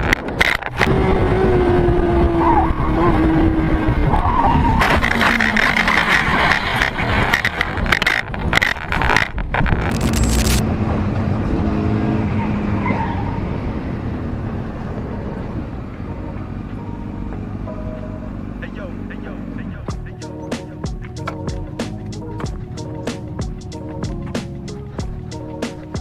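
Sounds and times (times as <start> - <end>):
motorcycle scraping and skidding: 0.0 - 15.8
motorcycle engine running: 19.9 - 26.0.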